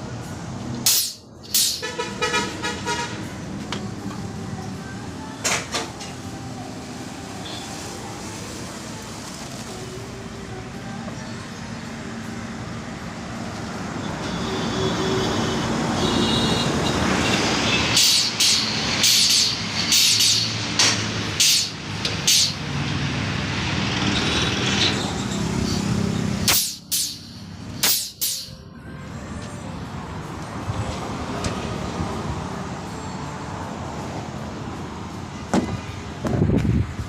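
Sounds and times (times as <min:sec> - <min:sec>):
air hissing bursts: 0:00.8 - 0:02.0, 0:17.9 - 0:22.6, 0:26.4 - 0:28.6.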